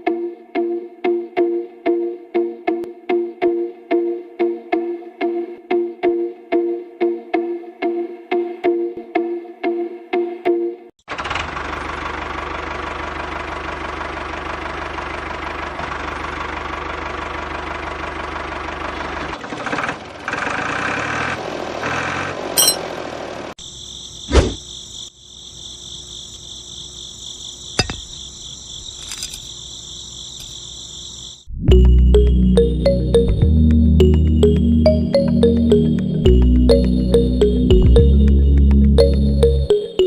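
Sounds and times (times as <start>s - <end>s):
small diesel engine running: 11.0s - 23.6s
insect chirring: 23.6s - 31.5s.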